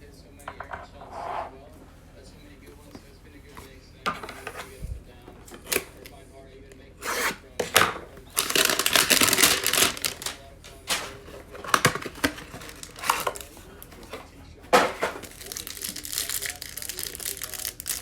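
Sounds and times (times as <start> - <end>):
plastic wrapping tearing: 5.5 - 6.1, 7.0 - 14.2, 14.8 - 18.0.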